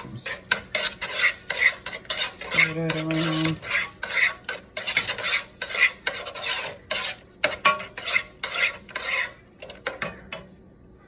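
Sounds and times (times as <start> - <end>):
utensil scraping sauce in skillet: 0.0 - 10.2.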